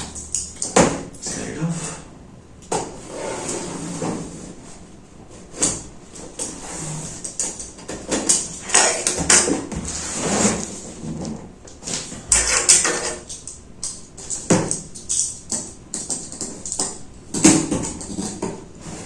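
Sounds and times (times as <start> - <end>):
cardboard scraping and rustling: 3.0 - 13.2.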